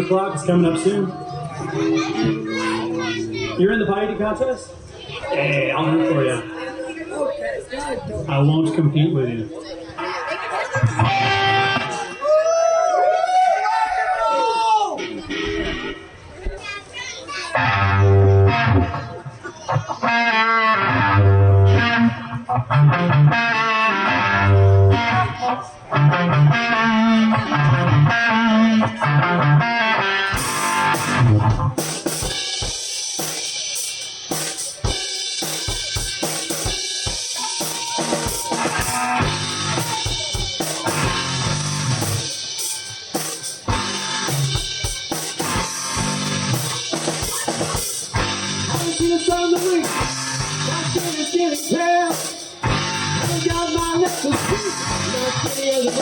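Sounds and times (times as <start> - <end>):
guitar: 0.0 - 13.4, 14.9 - 56.0
rock band playing instrumental: 1.2 - 4.9, 9.6 - 12.3, 15.0 - 16.3, 17.5 - 56.0
drum kit with cymbals and snare: 30.3 - 56.0.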